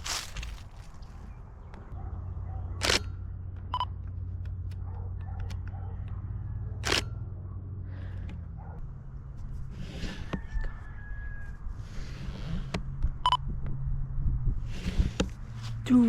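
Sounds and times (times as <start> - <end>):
camera shutter firing: 2.8 - 3.2, 6.8 - 7.2.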